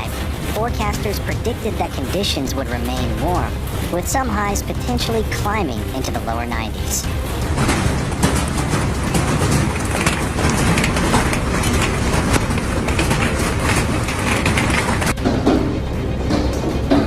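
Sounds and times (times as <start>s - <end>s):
hailstones clattering on hard surfaces: 7.0s - 15.2s.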